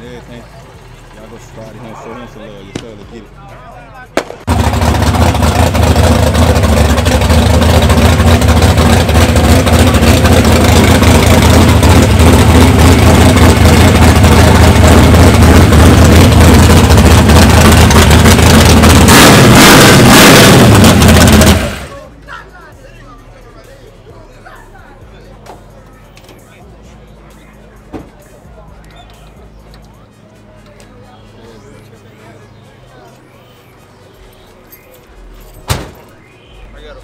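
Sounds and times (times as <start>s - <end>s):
car engine running loud: 0.0s - 22.2s.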